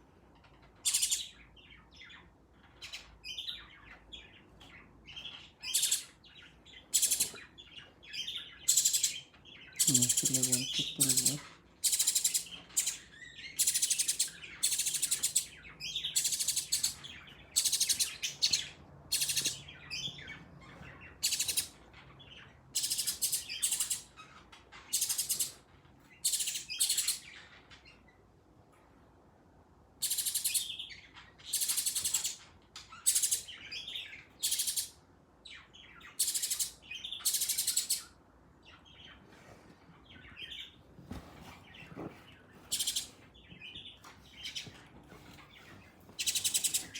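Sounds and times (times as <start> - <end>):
bird chirping in buzzy bursts: 5.6 - 6.1, 6.9 - 7.4, 8.6 - 19.6, 36.1 - 38.0, 42.7 - 43.1, 46.2 - 46.9.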